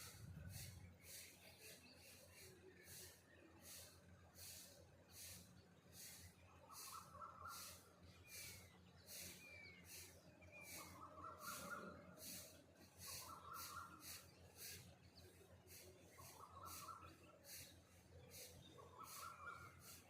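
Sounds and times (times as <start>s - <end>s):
faint birdsong: 0.0s - 20.0s.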